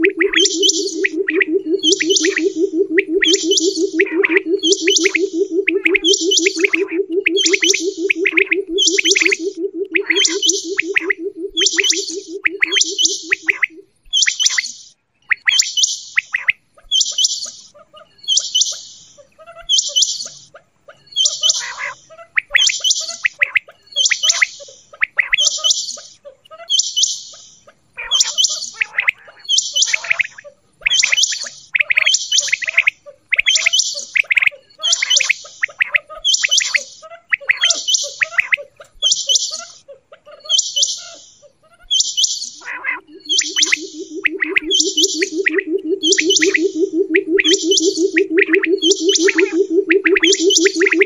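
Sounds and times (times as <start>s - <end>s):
low fast-pulsing tone: 0.0s - 13.8s, 43.0s - 51.0s
quail calling: 0.0s - 14.3s, 20.6s - 25.7s, 27.7s - 51.0s.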